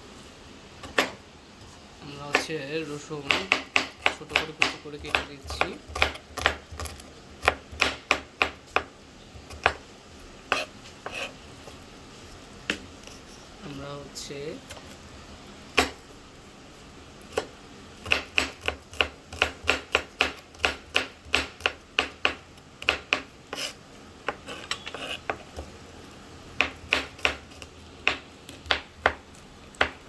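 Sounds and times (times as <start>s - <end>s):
knife chopping on cutting board: 3.2s - 8.9s, 9.5s - 9.8s, 10.5s - 11.3s, 15.8s - 16.0s, 17.4s - 25.6s, 26.6s - 29.2s, 29.8s - 30.0s.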